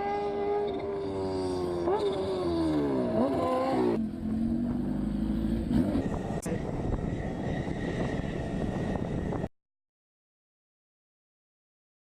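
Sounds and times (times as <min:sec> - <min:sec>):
high-revving racing engine: 0:00.0 - 0:09.5.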